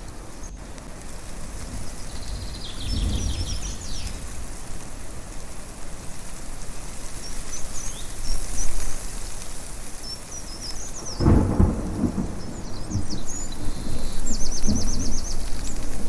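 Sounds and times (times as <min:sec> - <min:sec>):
wind: 0:00.0 - 0:16.0
thunder rumble: 0:01.3 - 0:04.6, 0:11.0 - 0:16.0
birds chirping: 0:01.9 - 0:04.2, 0:10.0 - 0:16.0.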